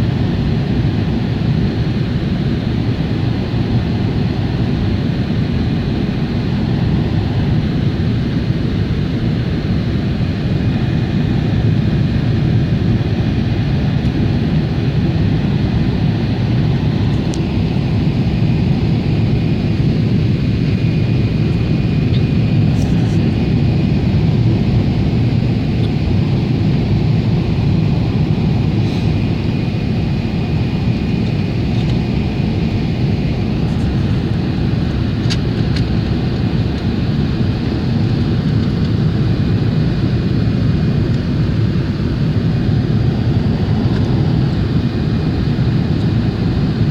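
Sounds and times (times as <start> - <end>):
airliner cabin engine rumble: 0.0 - 46.9.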